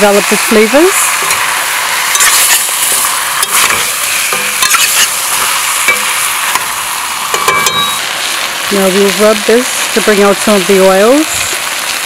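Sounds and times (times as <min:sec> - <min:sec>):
chicken sizzling in a pot: 0:00.0 - 0:12.0
metal spoon scraping pot: 0:03.4 - 0:06.2.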